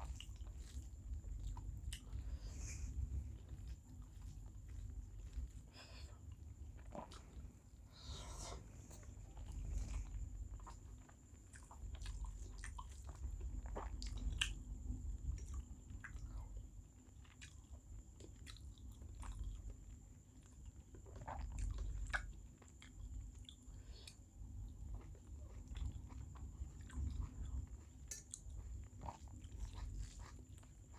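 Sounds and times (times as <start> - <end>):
person chewing food: 0.0 - 30.9
wet mouth clicks and smacks: 28.0 - 28.5.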